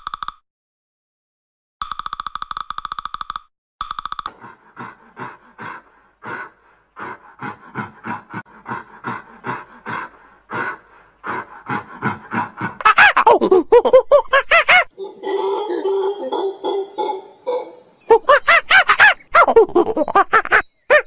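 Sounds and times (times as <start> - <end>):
woodpecker drumming: 1.8 - 13.1
ape panting hoots: 4.3 - 19.5
monkey calls: 7.0 - 21.0.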